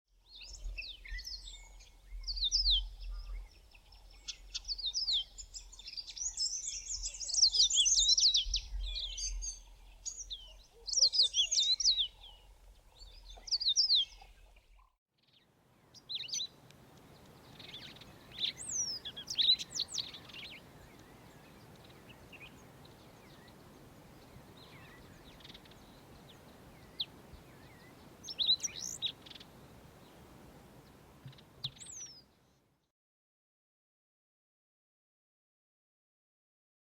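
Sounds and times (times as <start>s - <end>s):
background hiss: 15.6s - 32.6s.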